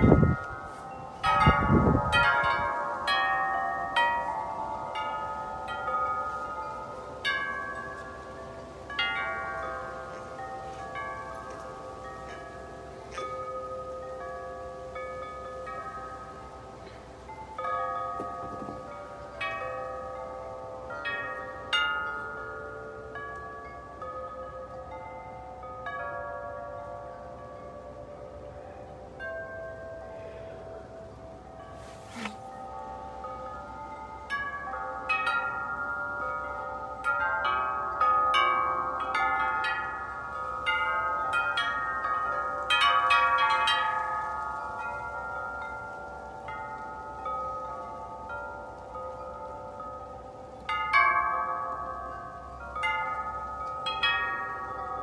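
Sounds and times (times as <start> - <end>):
gusting wind: 0.0 - 12.8
wind chimes ringing: 0.0 - 55.0.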